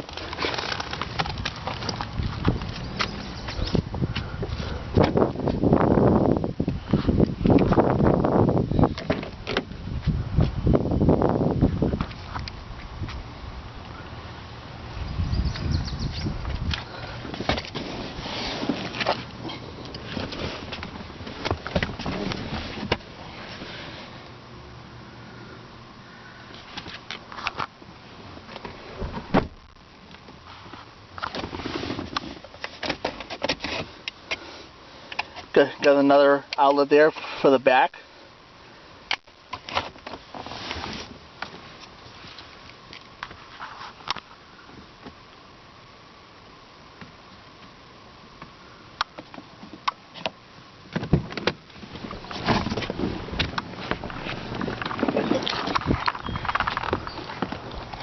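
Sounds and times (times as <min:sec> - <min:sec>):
rustling: 0:00.0 - 0:05.2, 0:16.4 - 0:24.3, 0:39.6 - 0:44.8, 0:51.2 - 0:58.0
handling clicks and knocks: 0:49.0 - 0:58.0.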